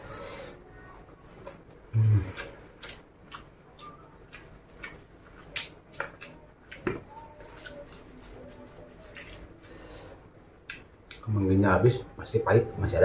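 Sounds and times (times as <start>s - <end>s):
chewing crisp leafy greens: 1.5s - 11.4s.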